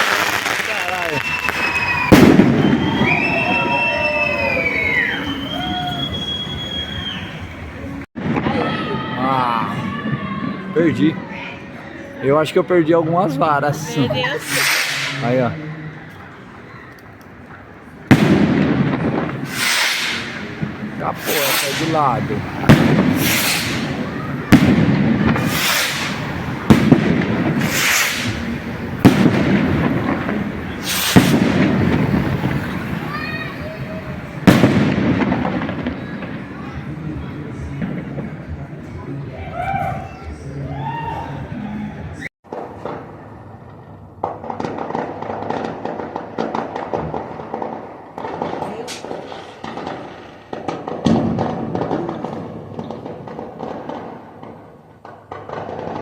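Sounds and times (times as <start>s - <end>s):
rocket bangs: 0.0s - 7.2s, 8.2s - 9.0s, 18.1s - 39.0s
rockets hissing: 0.0s - 7.5s, 13.8s - 15.4s, 18.1s - 36.4s.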